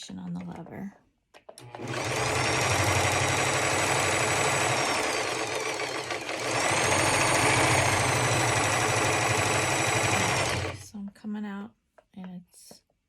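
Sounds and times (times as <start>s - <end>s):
serger sewing machine running: 1.6s - 10.9s.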